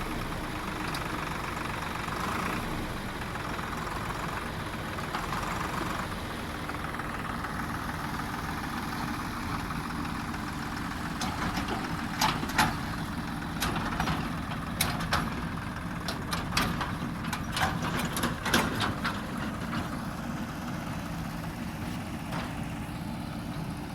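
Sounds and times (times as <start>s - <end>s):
diesel engine running: 0.0s - 23.9s
sharp knocks and clanks: 11.2s - 13.0s.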